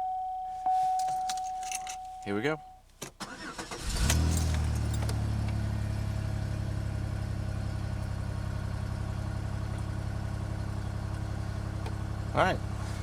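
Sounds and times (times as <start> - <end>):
car engine idling: 0.7 - 13.0.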